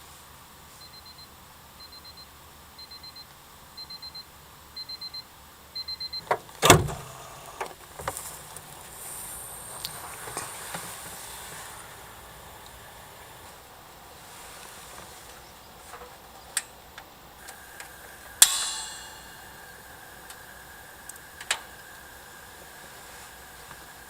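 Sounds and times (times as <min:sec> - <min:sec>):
electronic alarm beeping: 0:00.8 - 0:05.2, 0:05.8 - 0:06.3
sharp knock: 0:18.4 - 0:19.9.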